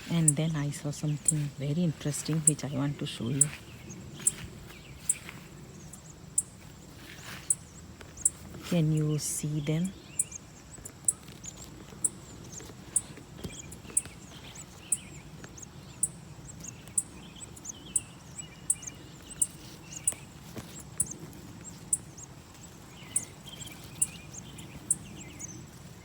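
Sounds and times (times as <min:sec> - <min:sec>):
low background hum: 0:00.0 - 0:26.0
softer lower bird chirping: 0:00.0 - 0:26.0
high-pitched bird chirps: 0:09.3 - 0:10.4, 0:13.0 - 0:20.2, 0:23.1 - 0:25.5.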